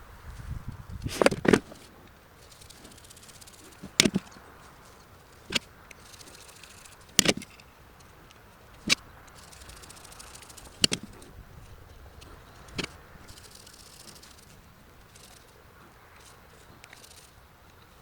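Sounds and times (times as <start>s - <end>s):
sharp clicks and knocks: 1.0s - 1.9s, 2.5s - 4.3s, 5.5s - 8.1s, 8.8s - 11.3s.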